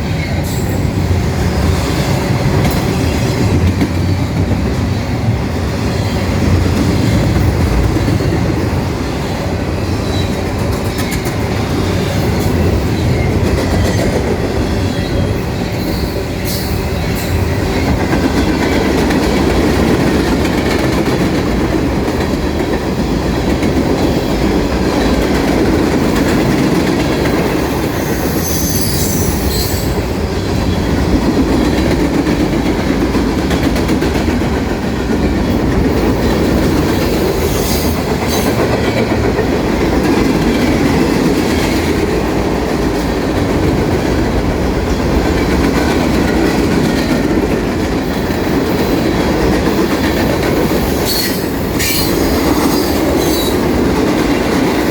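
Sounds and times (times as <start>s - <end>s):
freight train wheels clattering: 0.0s - 54.9s
high wheel squeals: 28.0s - 29.9s.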